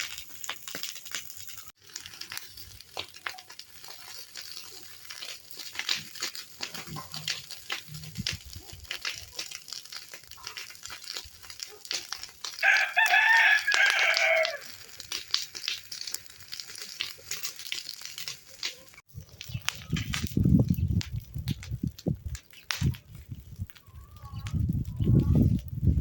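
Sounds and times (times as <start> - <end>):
rooster crowing: 12.6 - 14.8.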